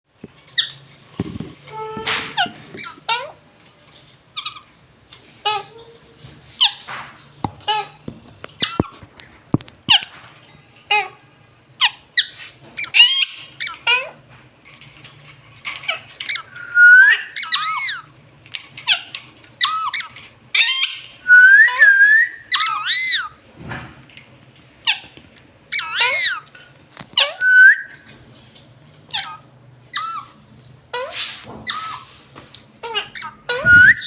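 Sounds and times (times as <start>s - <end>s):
parrots squeaking and whistling: 1.6s - 3.4s, 4.3s - 4.7s, 6.6s - 6.9s, 8.6s - 9.0s, 11.8s - 23.4s, 24.8s - 28.2s, 28.9s - 32.2s, 32.8s - 34.0s.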